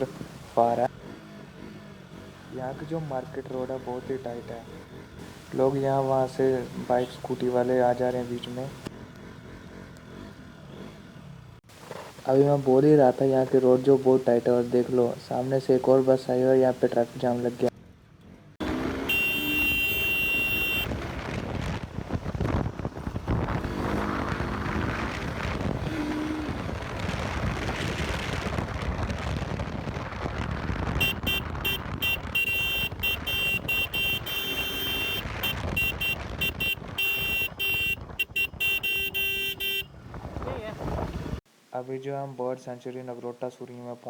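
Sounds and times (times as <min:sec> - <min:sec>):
motorcycle engine: 0:00.0 - 0:12.1, 0:17.7 - 0:41.4
wind on microphone: 0:20.8 - 0:34.0, 0:39.9 - 0:41.4.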